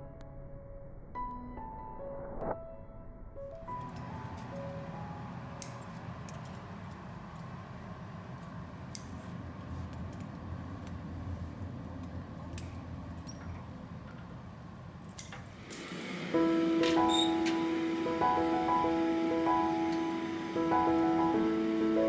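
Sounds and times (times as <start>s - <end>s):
furnace burners roaring: 3.9s - 22.0s
metallic clicks of hand tools: 15.1s - 15.4s.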